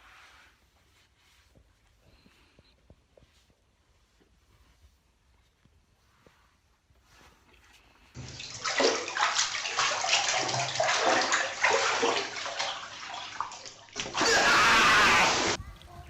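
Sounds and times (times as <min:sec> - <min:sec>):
water splashing and sloshing: 0:08.2 - 0:16.0.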